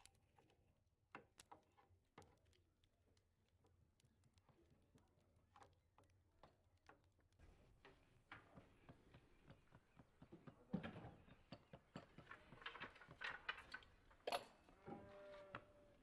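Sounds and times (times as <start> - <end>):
utensil clicks and knocks: 4.0 - 14.9.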